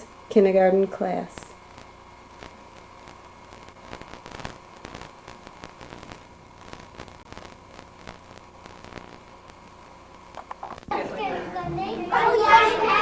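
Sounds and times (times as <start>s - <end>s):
electrical hum: 0.0s - 13.0s
crackling clicks: 1.4s - 10.9s.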